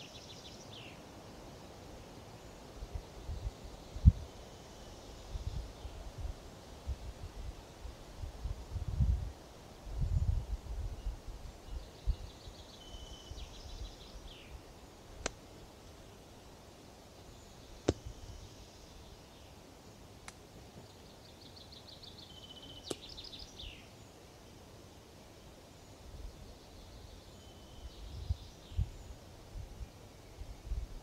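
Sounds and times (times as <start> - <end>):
songbird singing a trill: 0.0 - 7.1, 9.9 - 20.1, 20.7 - 31.0
forest hiss: 0.0 - 31.0
wind rumble on microphone: 2.8 - 4.3, 5.3 - 12.4, 27.8 - 31.0.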